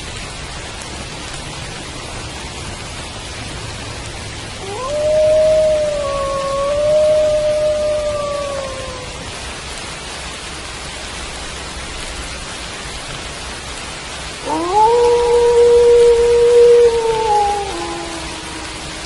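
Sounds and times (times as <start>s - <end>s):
steady rain: 0.0s - 19.0s
wolf howling: 4.6s - 9.4s, 14.4s - 19.0s.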